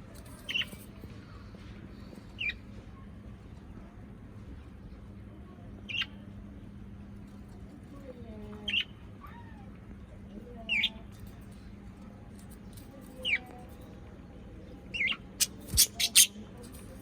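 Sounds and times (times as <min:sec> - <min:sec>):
high squeaky animal calls: 0:15.4 - 0:16.4.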